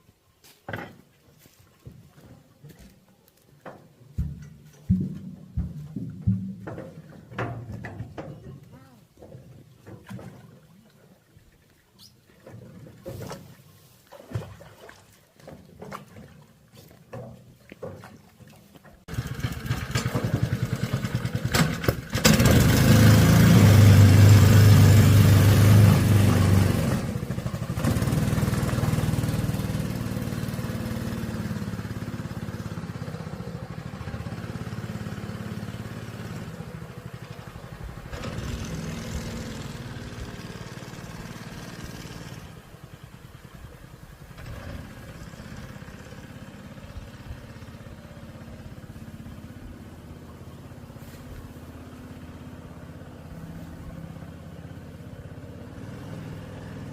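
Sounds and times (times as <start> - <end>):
small engine starting and running: 19.1 - 56.9.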